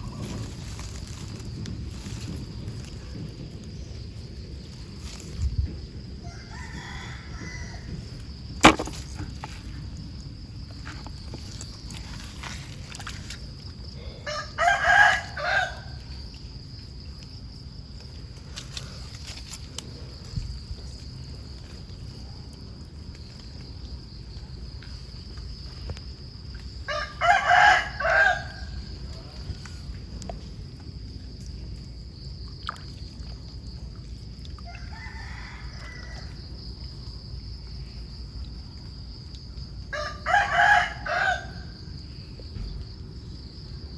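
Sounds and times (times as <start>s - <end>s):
rooster crowing: 6.2s - 8.0s, 14.2s - 16.0s, 26.9s - 28.8s, 34.7s - 36.4s, 39.9s - 41.8s.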